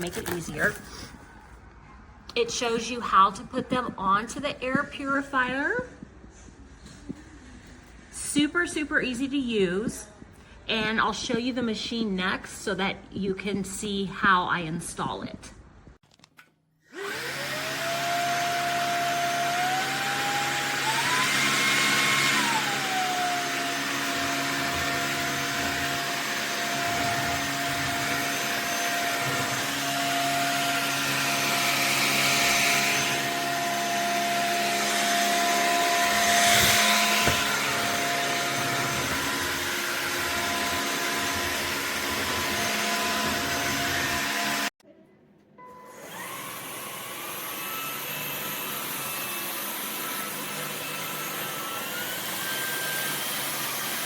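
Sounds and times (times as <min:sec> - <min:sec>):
vacuum motor whining: 0:16.9 - 0:44.7, 0:45.9 - 0:54.0.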